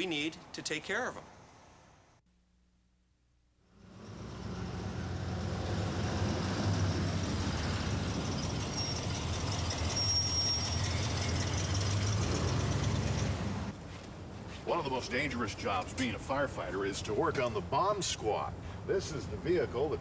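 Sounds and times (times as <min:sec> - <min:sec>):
heavy truck engine running: 0:03.8 - 0:13.7
thin high squeal: 0:08.3 - 0:12.2.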